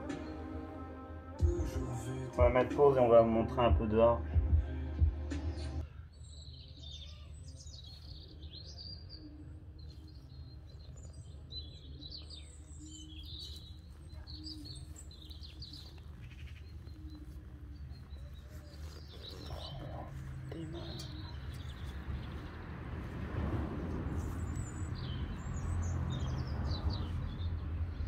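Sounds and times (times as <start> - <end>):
small birds chirping: 5.8 - 23.2, 23.8 - 28.0.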